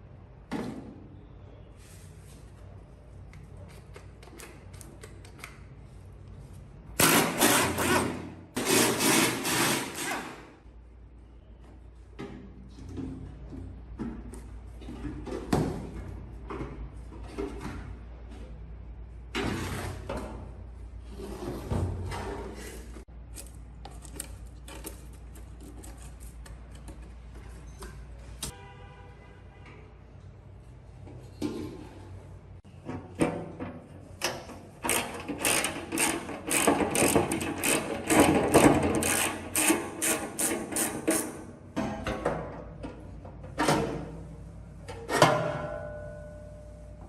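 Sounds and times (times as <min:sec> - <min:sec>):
power tool rattling: 0:34.8 - 0:41.2.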